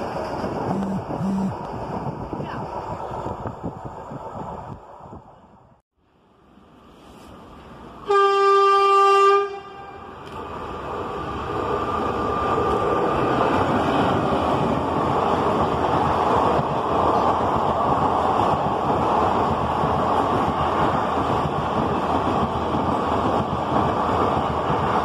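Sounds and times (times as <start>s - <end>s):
train running at speed: 0.0s - 25.0s
locomotive horn blast: 8.1s - 10.1s.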